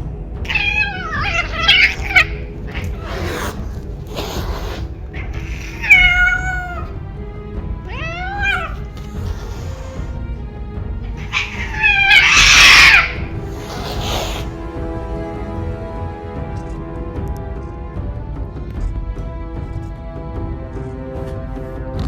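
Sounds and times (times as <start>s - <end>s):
background music: 0.0s - 22.0s
cats yowling: 0.4s - 7.0s, 7.7s - 10.2s, 11.1s - 14.6s.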